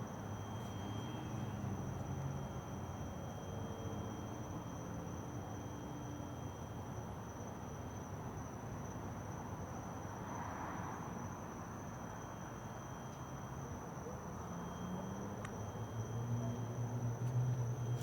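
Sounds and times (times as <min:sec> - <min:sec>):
high-pitched ringing tone: 0:00.1 - 0:06.8.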